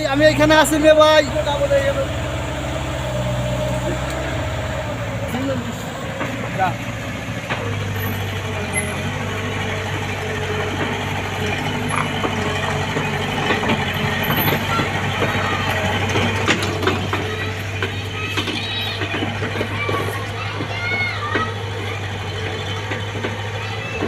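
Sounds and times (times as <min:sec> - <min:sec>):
engine idling: 0:00.0 - 0:24.0
short knocks and clatter: 0:10.6 - 0:21.9.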